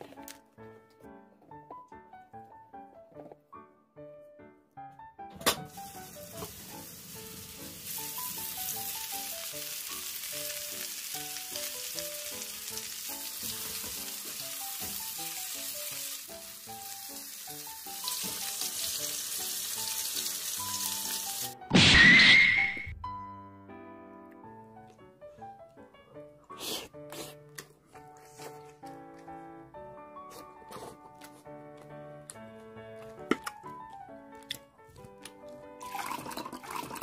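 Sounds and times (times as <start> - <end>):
light background melody: 0.0 - 21.8, 22.9 - 37.0
meat sizzling in a pan: 5.7 - 21.6.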